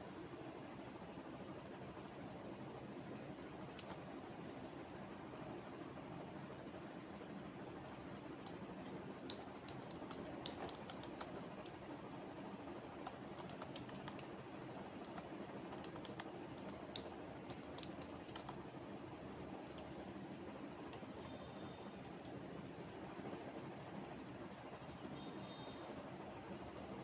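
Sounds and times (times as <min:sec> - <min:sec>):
steady low background noise: 0:00.0 - 0:27.0
computer keyboard typing: 0:03.7 - 0:04.0, 0:07.9 - 0:11.8, 0:13.0 - 0:18.7.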